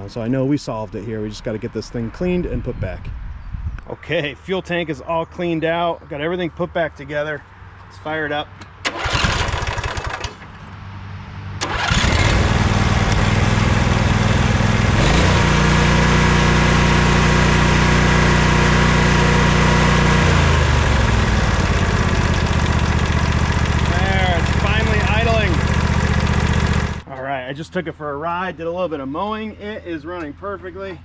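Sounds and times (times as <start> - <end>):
lawn tractor engine cranking: 8.8 - 10.6, 11.6 - 27.1
lawn tractor engine running: 8.8 - 10.6, 11.6 - 27.1.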